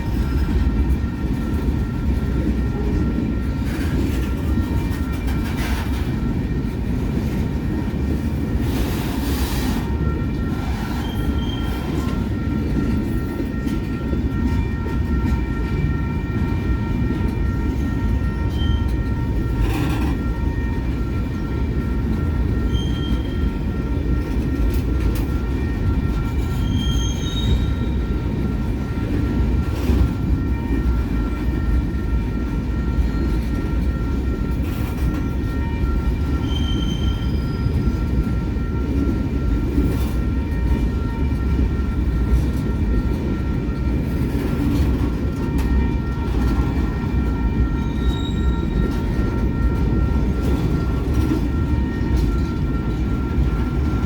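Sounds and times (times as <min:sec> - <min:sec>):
freight train cars rumbling: 0:00.0 - 0:54.0
train wheels squealing: 0:08.5 - 0:15.0, 0:17.6 - 0:20.8, 0:22.6 - 0:23.7, 0:26.2 - 0:28.4, 0:34.6 - 0:41.3, 0:44.0 - 0:54.0.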